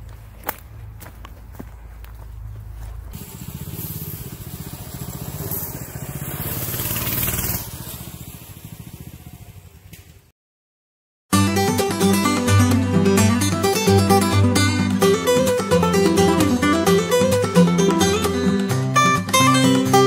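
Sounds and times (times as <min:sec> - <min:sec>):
minibike engine running: 0:02.8 - 0:10.3.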